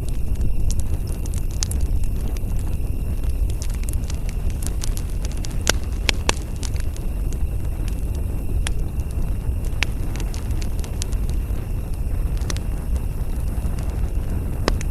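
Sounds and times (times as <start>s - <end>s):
campfire crackling: 0.0s - 14.9s
sharp pops of fire: 0.0s - 14.9s
steady low rumble: 0.0s - 14.9s.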